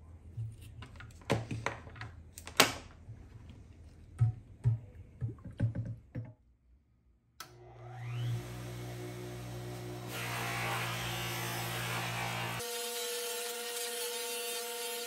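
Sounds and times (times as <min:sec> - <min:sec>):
bench buffer motor hum: 0:07.4 - 0:12.6.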